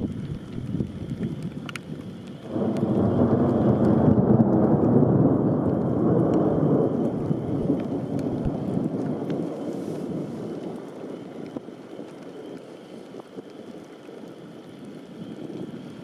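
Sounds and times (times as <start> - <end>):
thunder rumble: 0.0 - 12.4.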